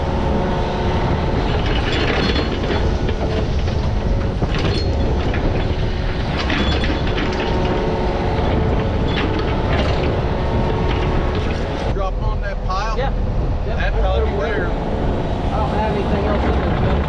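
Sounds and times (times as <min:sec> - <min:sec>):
metallic clanking and rattling: 0:00.0 - 0:12.0
digging machine diesel engine: 0:00.0 - 0:17.0.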